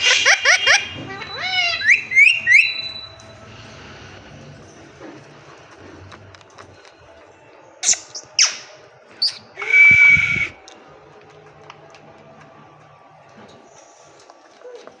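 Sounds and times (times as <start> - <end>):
parakeet squawking and screeching: 0.0 - 3.2, 7.8 - 10.6.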